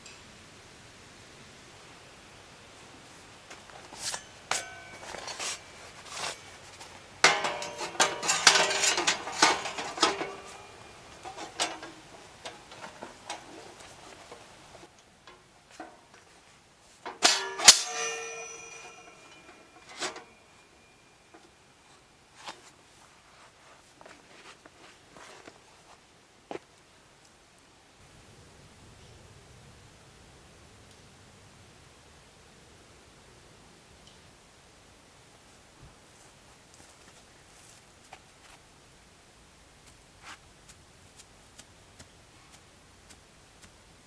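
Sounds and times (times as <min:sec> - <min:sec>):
metal gear clinking and clanging: 0:04.0 - 0:13.5, 0:17.1 - 0:20.8.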